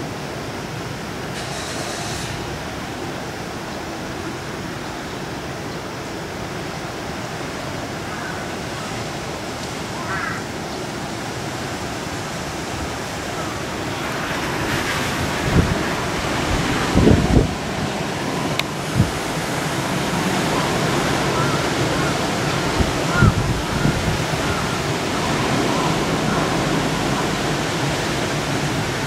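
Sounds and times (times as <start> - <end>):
flooded river rushing: 0.0 - 29.0
wind buffeting microphone: 11.1 - 29.0.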